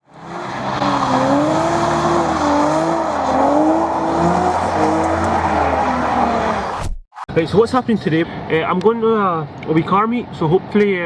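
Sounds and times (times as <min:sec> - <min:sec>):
wavering tyre squeal: 0:00.1 - 0:06.8.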